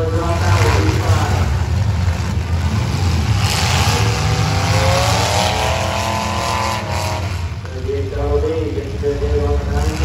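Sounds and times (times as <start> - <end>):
engine revving up: 0.0 - 7.6
car engines rumbling: 0.0 - 10.0
rush of noise: 0.0 - 10.0.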